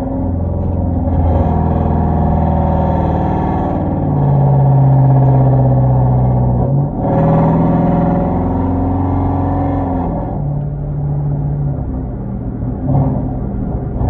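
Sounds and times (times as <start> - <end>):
car exhaust droning under load: 0.0 - 14.0.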